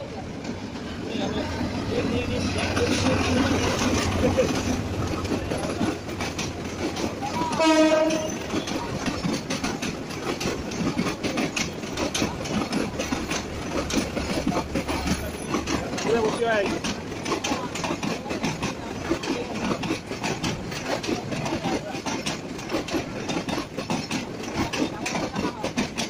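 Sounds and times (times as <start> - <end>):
train wheels clacking with rumble: 0.0 - 26.0
train horn blast: 7.4 - 8.7.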